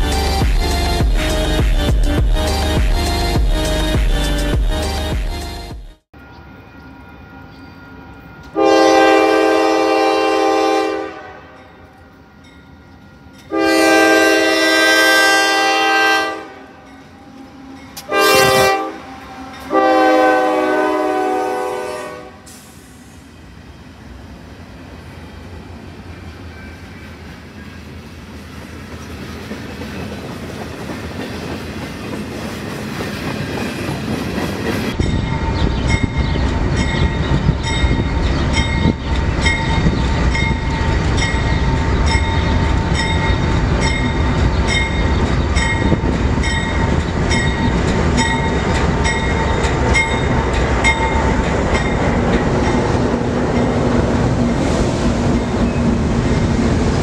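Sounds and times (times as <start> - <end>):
diesel locomotives rumbling: 0.0 - 57.0
train wheels clacking: 28.4 - 54.1.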